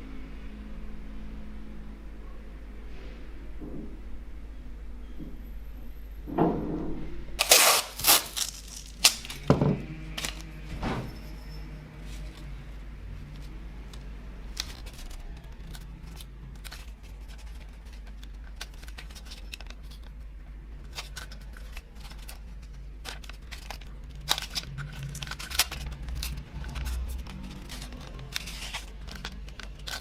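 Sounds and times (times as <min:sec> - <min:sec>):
snipping tearing and crinkling: 0:07.4 - 0:09.4, 0:20.9 - 0:30.0.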